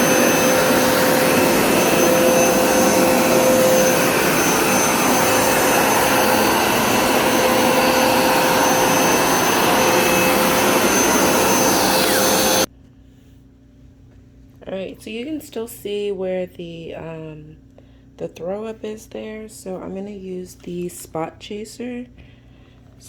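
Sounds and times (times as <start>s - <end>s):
carpet cleaner motor running: 0.0s - 12.7s.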